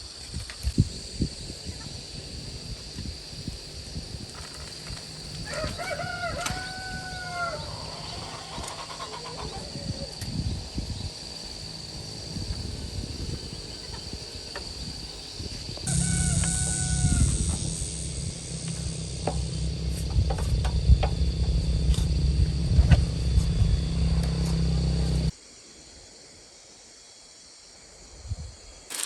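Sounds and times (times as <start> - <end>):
high-pitched whine: 0.8 - 25.3
low rumbling background noise: 0.8 - 25.3
rooster crowing: 5.4 - 10.0, 15.9 - 19.9.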